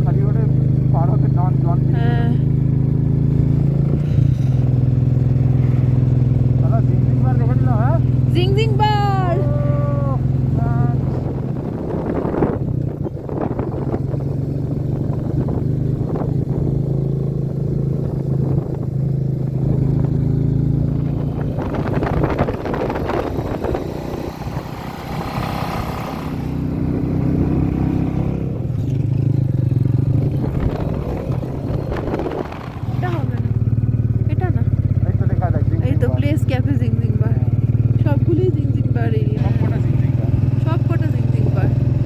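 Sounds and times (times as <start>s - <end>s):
motorcycle engine running: 0.0s - 42.0s
wind and road noise: 0.0s - 42.0s.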